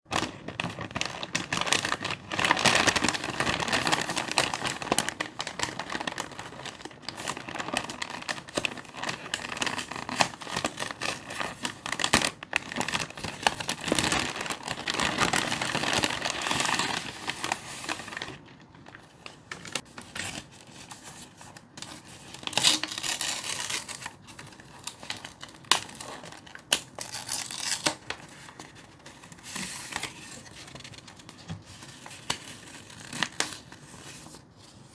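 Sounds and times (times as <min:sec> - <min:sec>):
wrapping crinkling and rustling: 0:00.1 - 0:34.9.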